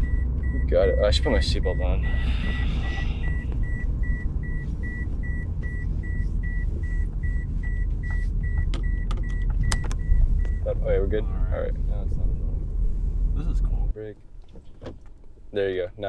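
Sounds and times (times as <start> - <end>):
seatbelt warning chime beeping: 0.0 - 10.7
car engine rumble: 0.0 - 16.0.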